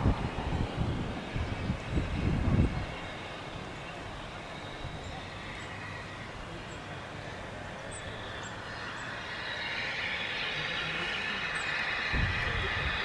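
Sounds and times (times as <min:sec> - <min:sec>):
train rushing rumble: 0:00.0 - 0:13.0.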